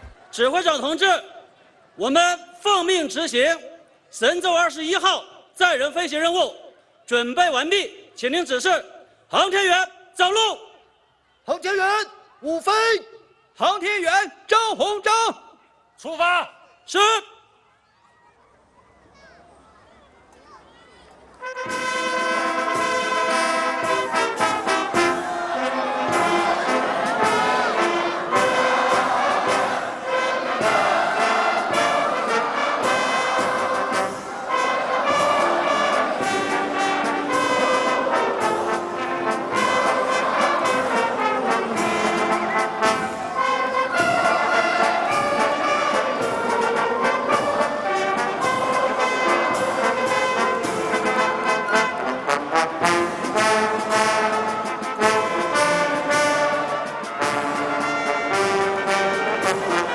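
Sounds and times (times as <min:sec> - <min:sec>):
brass band music: 0:21.4 - 0:59.9.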